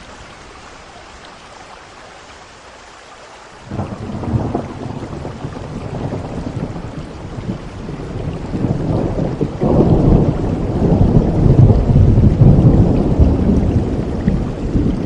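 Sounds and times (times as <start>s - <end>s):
rain falling: 0.0s - 15.0s
thunder rumbling: 3.7s - 15.0s.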